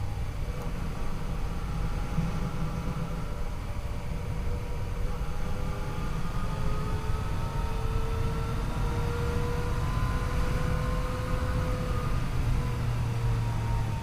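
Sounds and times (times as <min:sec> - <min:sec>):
motorcycle engine accelerating: 0:04.4 - 0:14.0.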